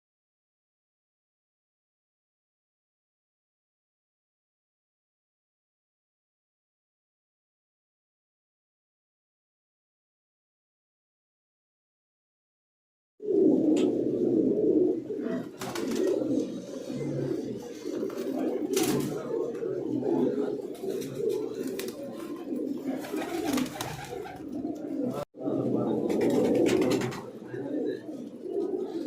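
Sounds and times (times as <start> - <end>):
pigeons cooing: 13.2 - 29.0.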